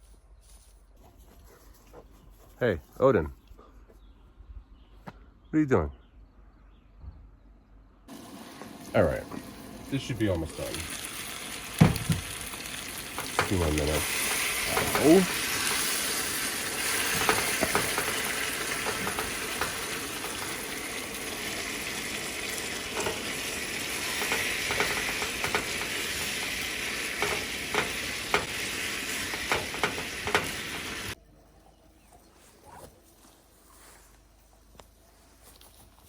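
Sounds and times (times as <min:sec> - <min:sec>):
chicken wings sizzling in a pan: 0:08.1 - 0:31.2.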